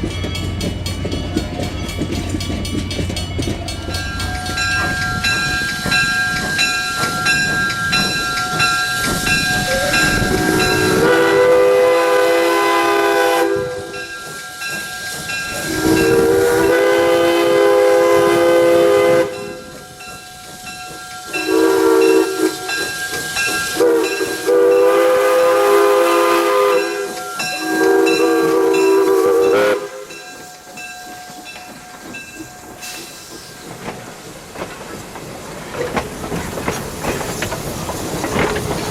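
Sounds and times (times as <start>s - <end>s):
locomotive engine and steam noise: 0.0s - 38.9s
steam locomotive whistle blasts: 8.8s - 20.0s, 21.2s - 30.4s.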